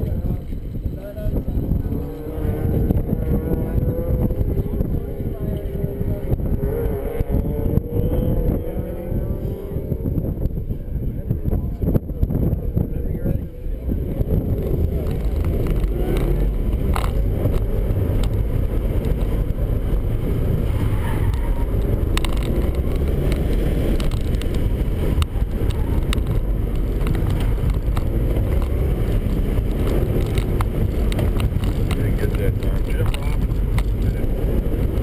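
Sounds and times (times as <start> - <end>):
car engine rumbling: 0.0 - 35.0
road and wind noise: 0.0 - 35.0
sharp clicks and rattles: 14.1 - 35.0.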